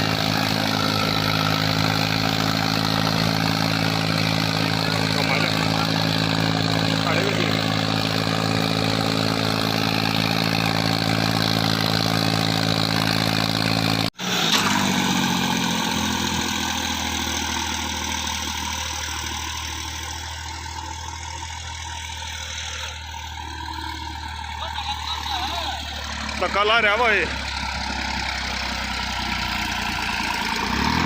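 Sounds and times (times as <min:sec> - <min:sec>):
different engine note: 0:00.0 - 0:16.4
tractor diesel engine running: 0:00.0 - 0:31.0.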